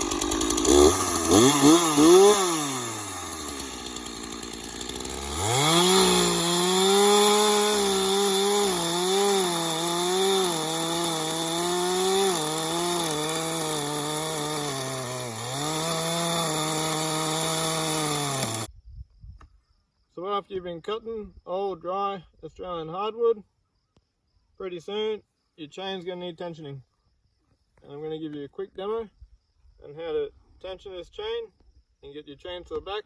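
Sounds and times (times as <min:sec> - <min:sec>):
chainsaw cutting wood: 0:00.0 - 0:18.7
chainsaw revving and idling: 0:00.0 - 0:18.7.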